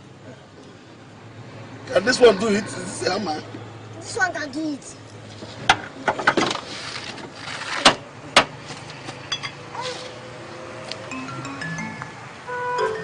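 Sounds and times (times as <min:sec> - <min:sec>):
short musical notes: 0:11.1 - 0:13.0.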